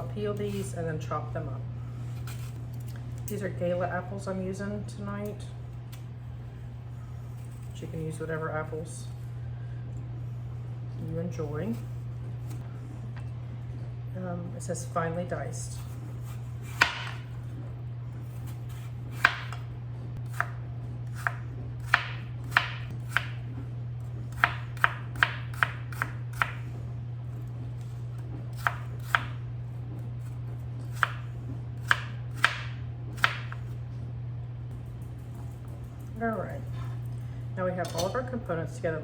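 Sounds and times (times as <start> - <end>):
steady low hum: 0.0 - 39.0
knife chopping on cutting board: 15.8 - 17.3, 18.4 - 19.6, 20.3 - 23.4, 24.3 - 26.6, 28.5 - 29.4, 30.9 - 33.7.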